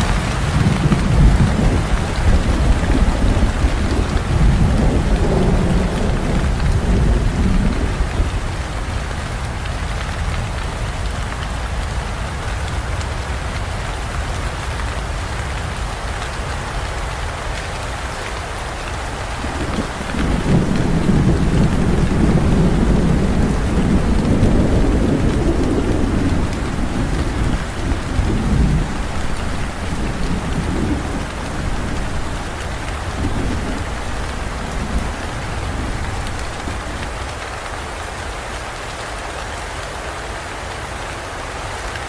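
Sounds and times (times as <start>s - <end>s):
thunder rumbling: 0.0s - 9.6s, 18.9s - 38.4s
steady rain: 0.0s - 42.0s.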